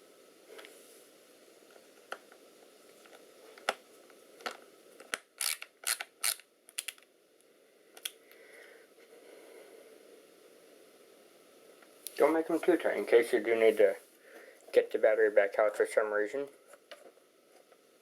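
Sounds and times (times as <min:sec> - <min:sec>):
screwdriver clicks: 0:05.4 - 0:07.0.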